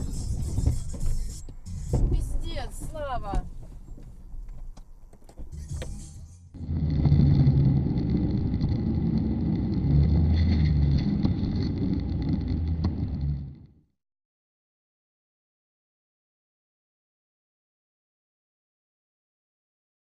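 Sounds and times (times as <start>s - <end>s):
car engine and road noise: 0.0s - 13.8s.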